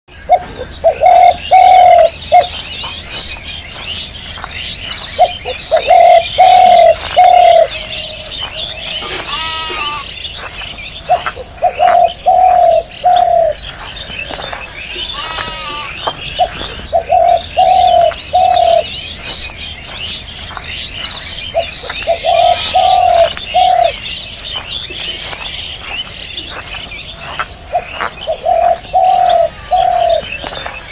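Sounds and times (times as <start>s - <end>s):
small birds chirping: 0.1s - 30.9s
dove cooing: 0.2s - 3.2s, 5.2s - 10.1s, 11.0s - 19.0s, 21.5s - 24.0s, 27.6s - 30.6s.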